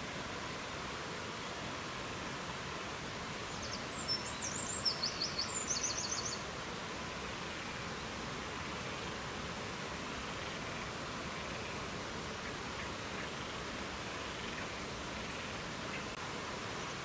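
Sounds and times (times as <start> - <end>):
songbird singing: 3.4 - 6.5.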